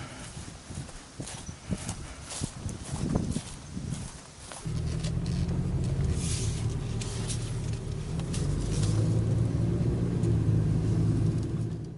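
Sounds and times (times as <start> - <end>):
low rumble: 4.7 - 11.9.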